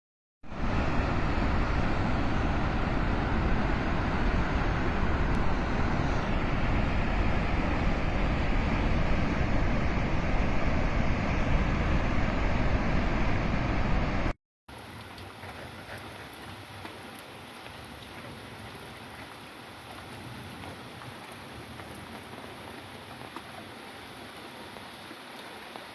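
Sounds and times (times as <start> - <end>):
floodwater rushing: 14.7 - 25.9.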